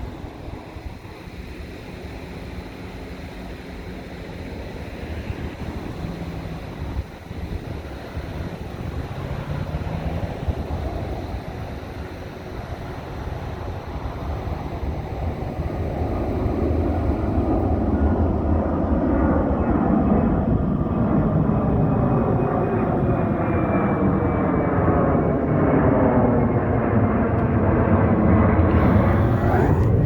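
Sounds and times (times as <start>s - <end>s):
jet engine rumble: 0.0s - 30.0s
falling whining tones: 28.7s - 30.0s.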